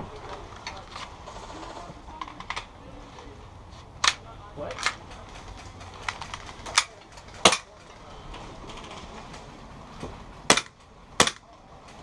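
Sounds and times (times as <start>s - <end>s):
airsoft gun shots: 10.5s - 11.4s.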